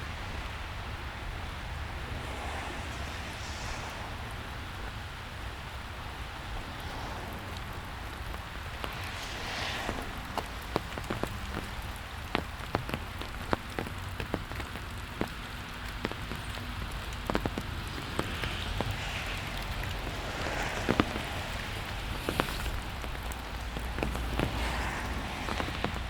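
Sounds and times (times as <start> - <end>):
large raindrops tapping: 0.0 - 26.0
steady rain: 0.0 - 26.0
low rumble: 1.6 - 11.9.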